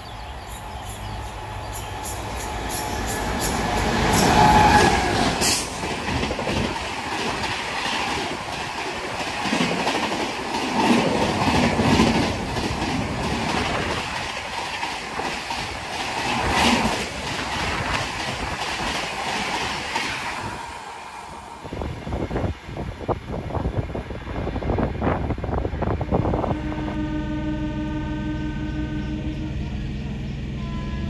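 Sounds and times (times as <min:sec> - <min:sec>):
train wheels clattering on rail: 0:01.8 - 0:20.6.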